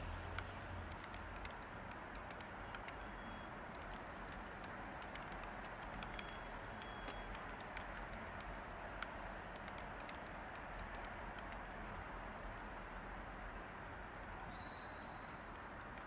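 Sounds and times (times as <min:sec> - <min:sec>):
steady white-noise hiss: 0:00.0 - 0:16.0
computer keyboard typing: 0:00.4 - 0:12.0, 0:15.3 - 0:16.0.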